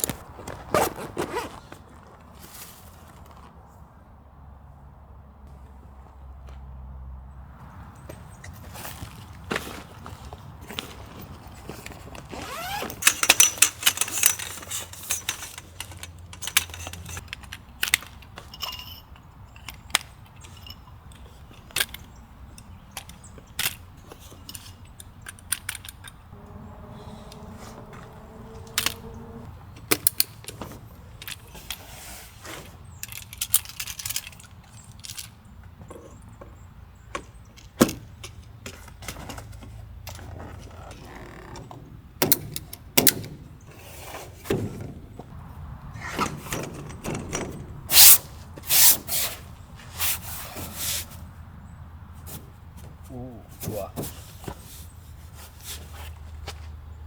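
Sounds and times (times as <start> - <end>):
metal jingling: 13.0 - 17.4, 26.4 - 29.5
knocks and rustles: 26.4 - 29.5
short squeak-like tone: 26.4 - 29.5.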